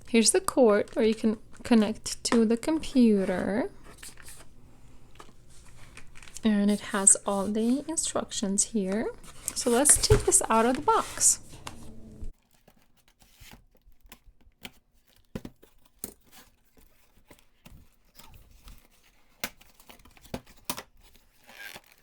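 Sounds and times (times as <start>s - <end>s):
packaging tearing and crackling: 18.0s - 22.0s.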